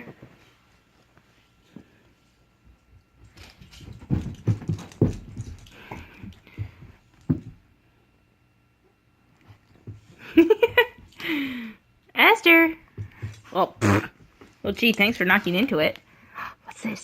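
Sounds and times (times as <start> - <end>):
dog paws scrabbling on floor: 2.6 - 7.6, 12.7 - 16.0.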